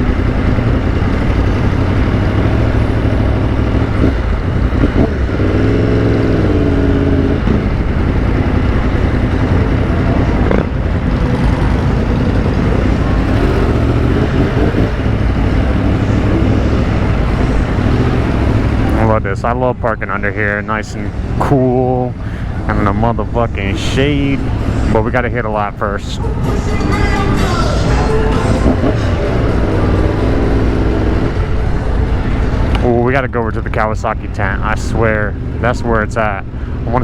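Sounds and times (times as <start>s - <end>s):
motorcycle engine running: 0.0s - 34.4s.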